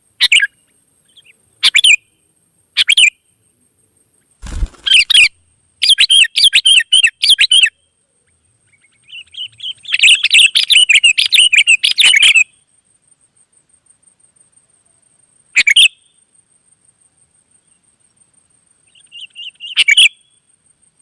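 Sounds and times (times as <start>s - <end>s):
bird chattering song: 4.4s - 7.7s.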